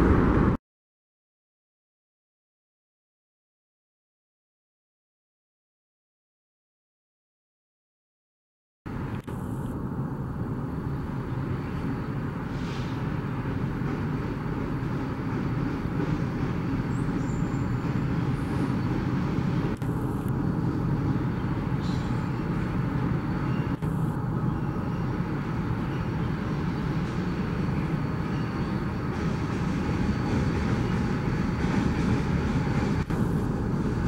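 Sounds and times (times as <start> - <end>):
train wheels rumbling on rails: 0.0 - 0.6, 8.9 - 34.0.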